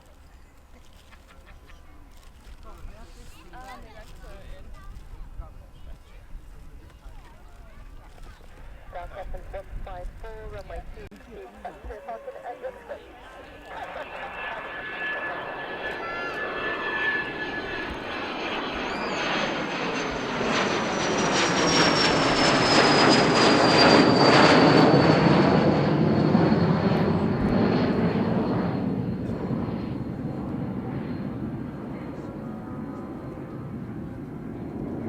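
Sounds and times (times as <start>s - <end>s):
jet aircraft passing: 7.8s - 35.0s.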